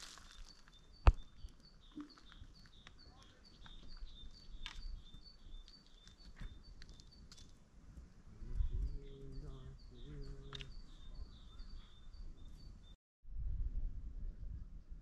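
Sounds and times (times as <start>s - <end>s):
footsteps on stony ground: 0.0s - 7.6s.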